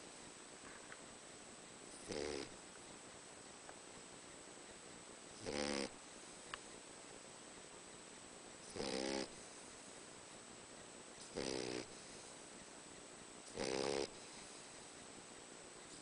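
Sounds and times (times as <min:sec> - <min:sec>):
dog snoring: 0:01.9 - 0:02.6, 0:05.3 - 0:06.0, 0:08.6 - 0:09.6, 0:11.3 - 0:12.3, 0:13.5 - 0:14.8.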